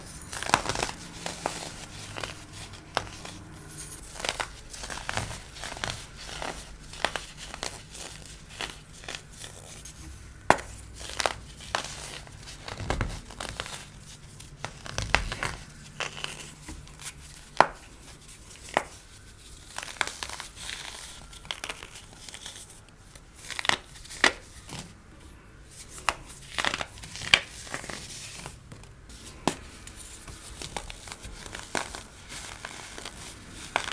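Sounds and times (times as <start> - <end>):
baking soda crunching and cracking: 0.0 - 25.0, 25.7 - 33.9.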